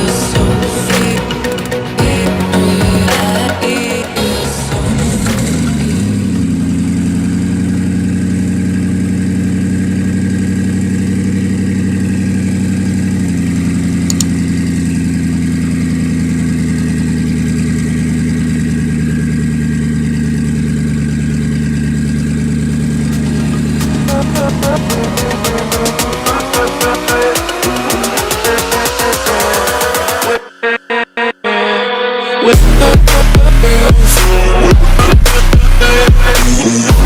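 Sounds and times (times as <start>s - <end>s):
car engine idling: 0.0s - 30.5s, 32.6s - 37.0s.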